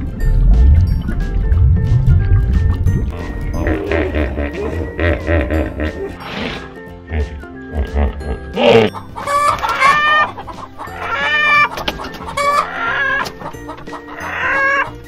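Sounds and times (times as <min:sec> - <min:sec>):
quiet background music: 0:00.0 - 0:15.0
chickens clucking and calling: 0:03.1 - 0:06.2, 0:07.8 - 0:15.0.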